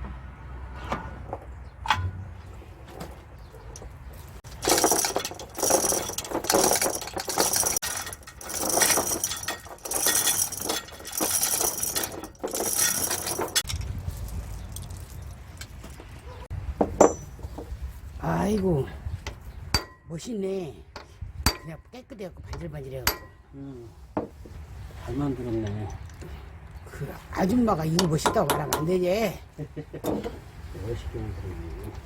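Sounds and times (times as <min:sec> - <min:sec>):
metal parts clinking and rattling: 0:03.7 - 0:17.5.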